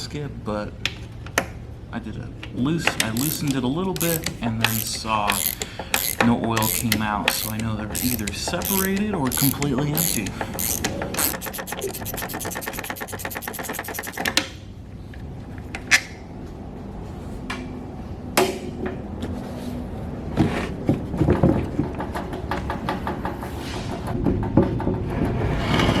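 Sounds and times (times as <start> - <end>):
metal parts clanking and rattling: 3.0 - 14.4
ratchet wrench clicking: 3.0 - 14.4.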